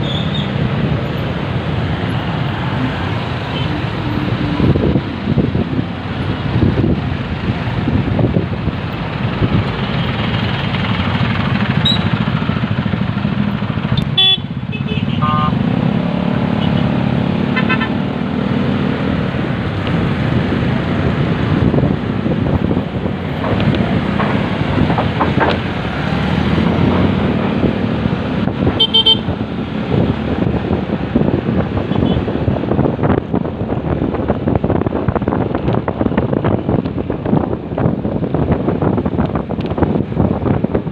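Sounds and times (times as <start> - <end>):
motorcycle engine rumble: 0.0 - 15.5
vehicle horn toots: 14.0 - 15.6, 17.6 - 17.9, 28.8 - 29.3.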